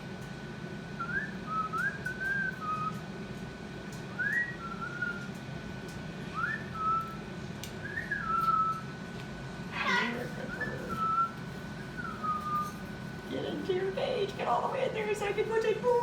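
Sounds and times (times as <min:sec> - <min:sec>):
cockatoo whistling: 0:01.0 - 0:03.0, 0:04.1 - 0:05.3, 0:06.3 - 0:07.2, 0:07.8 - 0:08.9, 0:09.8 - 0:12.8.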